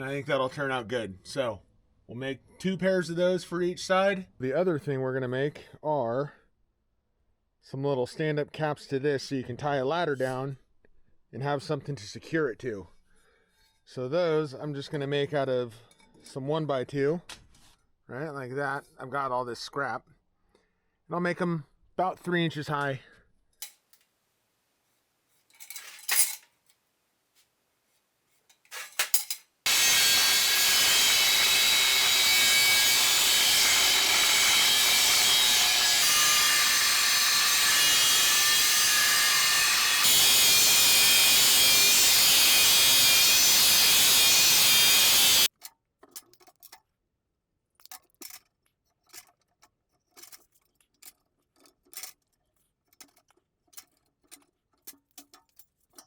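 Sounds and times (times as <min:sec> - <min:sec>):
metal pieces clicking and knocking: 0:28.5 - 0:29.5, 0:45.5 - 0:46.9, 0:47.8 - 0:56.0
power saw cutting steel tubing: 0:29.7 - 0:45.5.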